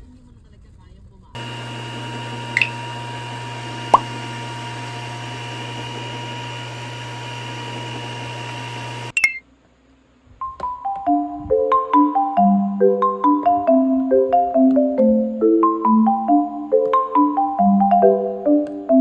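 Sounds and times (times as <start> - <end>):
low mechanical hum: 1.3 - 9.2
faint steady tones: 1.4 - 9.2.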